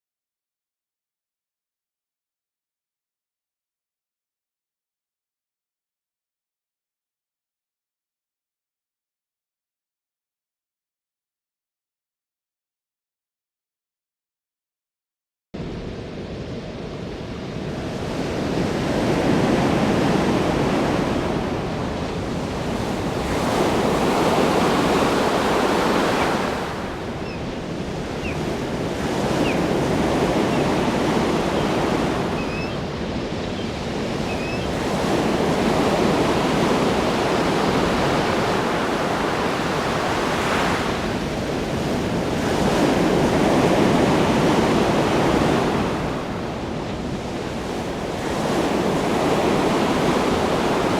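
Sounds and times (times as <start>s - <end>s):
ocean waves breaking on shore: 15.6s - 50.9s.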